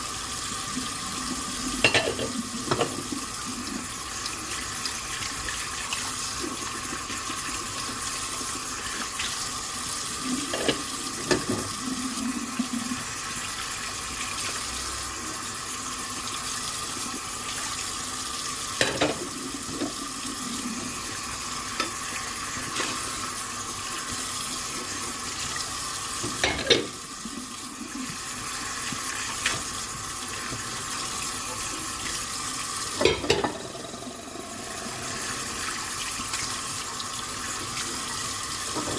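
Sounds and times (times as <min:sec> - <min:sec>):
tap water running into sink: 0:00.0 - 0:38.9
dishes knocking and clinking: 0:01.8 - 0:03.1, 0:26.4 - 0:26.9, 0:33.0 - 0:33.7.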